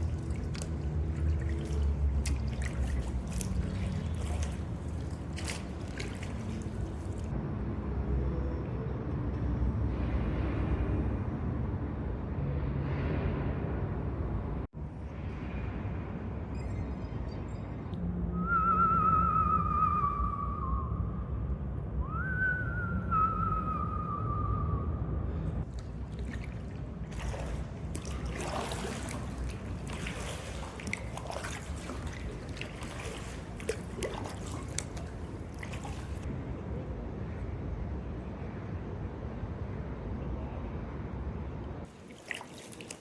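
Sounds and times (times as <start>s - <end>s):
kayak paddle strokes: 0.0s - 7.3s, 25.7s - 36.3s, 41.9s - 43.0s
water splashing off paddle: 0.0s - 7.3s, 25.7s - 36.3s, 41.9s - 43.0s
wavering whistle-like tones: 18.3s - 21.2s.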